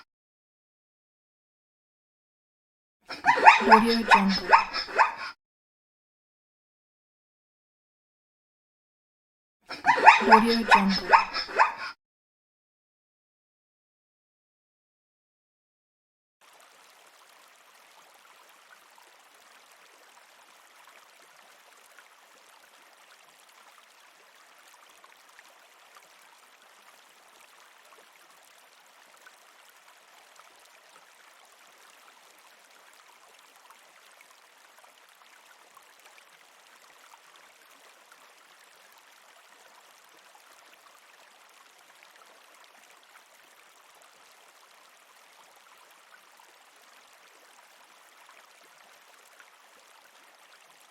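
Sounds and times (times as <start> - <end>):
running water: 3.1 - 5.3, 9.7 - 12.0, 16.4 - 50.9.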